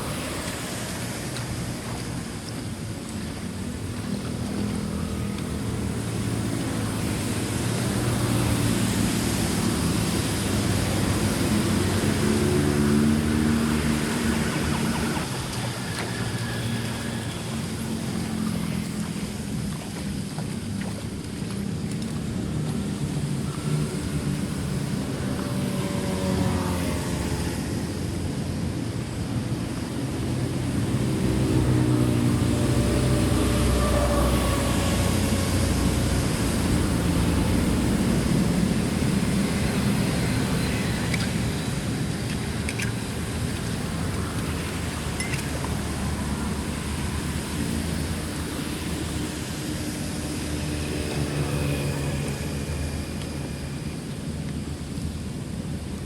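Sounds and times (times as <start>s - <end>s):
engine droning: 0.0s - 56.0s.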